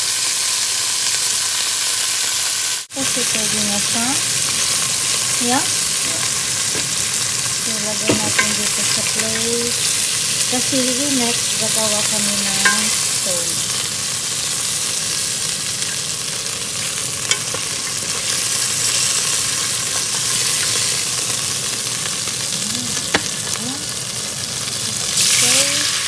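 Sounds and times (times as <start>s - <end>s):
meat sizzling in oil: 0.0s - 26.0s
tongs clicking: 12.6s - 13.2s, 17.3s - 18.0s.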